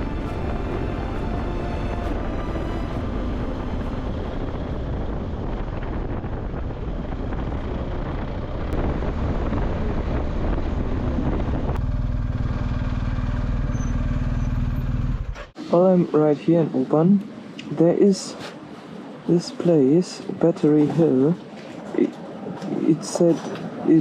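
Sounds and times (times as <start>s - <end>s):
wind noise on microphone: 0.0s - 12.1s
motorcycle engine: 0.0s - 15.6s.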